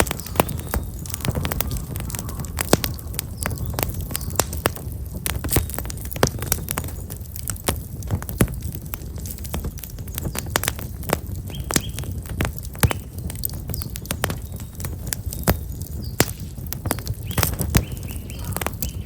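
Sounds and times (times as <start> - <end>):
small birds chirping: 0.0 - 7.6, 9.0 - 19.0
low rumble: 0.0 - 10.2
firewood crackling and popping: 0.0 - 19.0.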